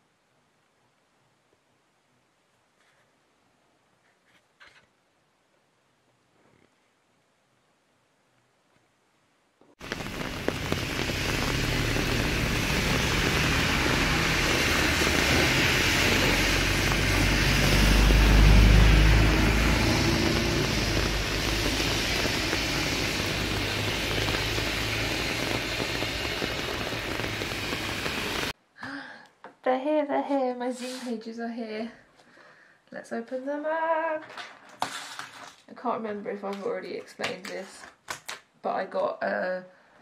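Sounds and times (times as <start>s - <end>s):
low rumble: 9.8s - 28.5s
heavy rain on road: 9.8s - 28.6s.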